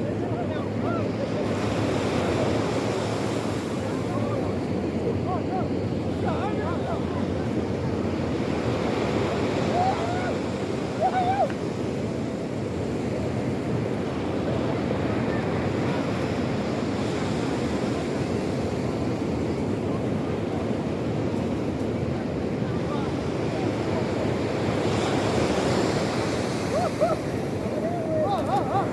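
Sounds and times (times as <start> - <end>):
sea surf washing: 0.0 - 28.9.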